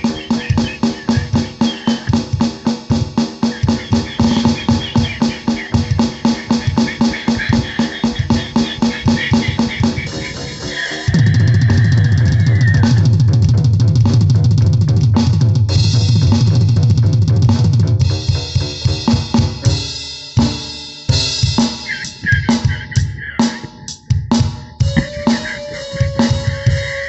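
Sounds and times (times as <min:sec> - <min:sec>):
drum kit fast beat: 0:00.0 - 0:27.0
deep bass part: 0:11.1 - 0:18.8.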